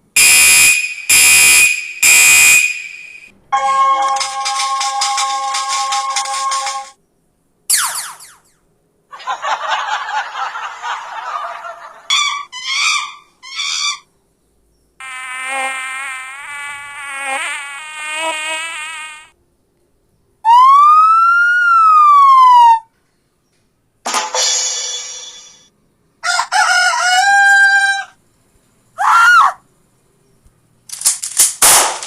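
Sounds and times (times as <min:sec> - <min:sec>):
insect-like buzz: 0:15.0 - 0:19.4.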